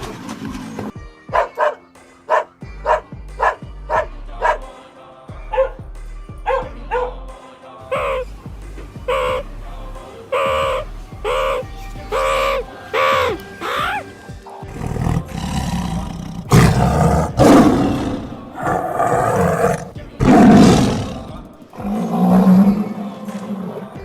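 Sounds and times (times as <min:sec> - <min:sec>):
background music: 0:00.0 - 0:24.0
short pitched calls: 0:07.9 - 0:08.3, 0:09.0 - 0:09.5, 0:10.1 - 0:20.0
tiger roaring: 0:10.4 - 0:24.0.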